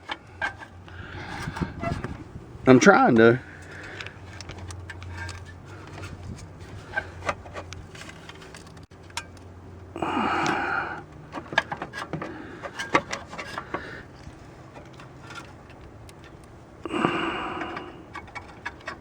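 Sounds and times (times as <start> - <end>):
metal parts and tools clicking: 3.6 - 9.5, 11.3 - 16.6, 17.4 - 19.0
person grunting: 10.0 - 11.0, 16.9 - 18.0.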